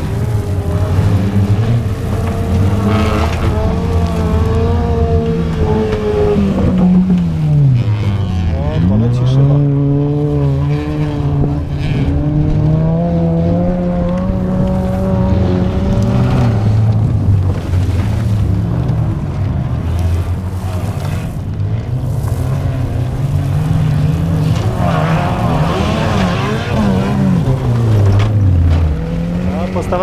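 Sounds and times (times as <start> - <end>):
race car engines revving: 0.0 - 30.0.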